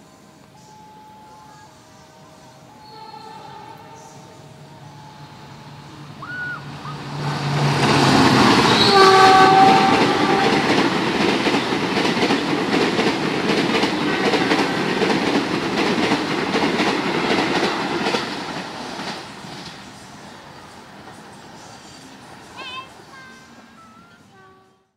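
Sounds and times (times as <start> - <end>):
train passing at speed: 0.0 - 24.9
train horn: 0.1 - 6.0, 7.4 - 10.9, 13.9 - 15.2, 22.6 - 24.9.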